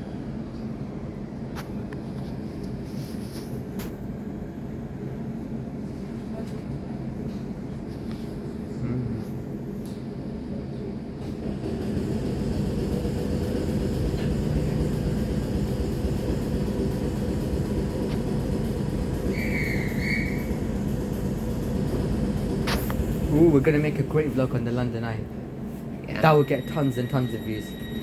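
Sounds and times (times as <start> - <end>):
train wheels rumbling: 9.8 - 25.7.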